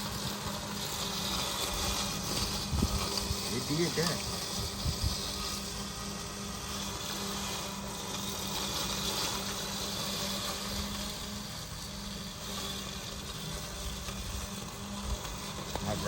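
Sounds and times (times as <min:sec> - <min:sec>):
robotic lawnmower cutting grass: 0:00.0 - 0:16.0.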